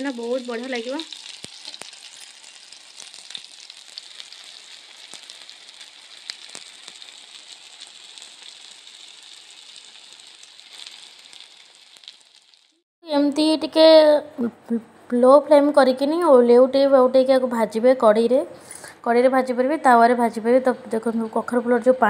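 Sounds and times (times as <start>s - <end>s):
fritters sizzling in oil: 0.0s - 12.8s.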